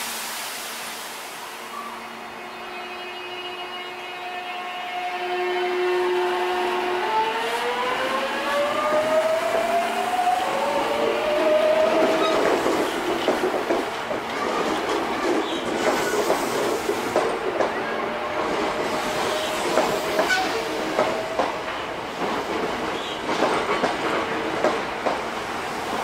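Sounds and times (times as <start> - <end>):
train running noise: 0.0 - 26.0
wheels clacking over rail joints: 11.9 - 17.8, 19.7 - 25.4.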